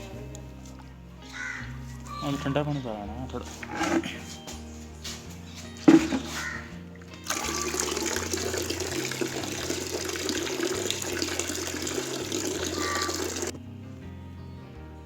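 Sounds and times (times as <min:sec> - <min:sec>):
water running into a container: 0:07.1 - 0:13.5.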